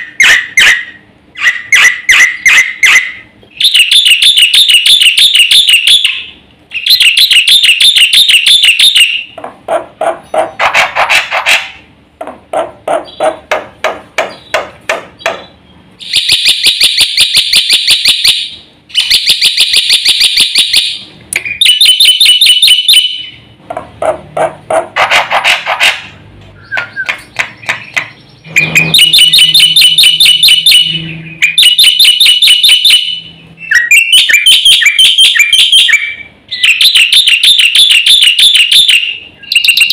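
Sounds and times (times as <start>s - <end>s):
bird singing buzzy trills: 13.0s - 13.4s, 14.2s - 16.3s, 22.6s - 23.5s, 26.5s - 37.1s.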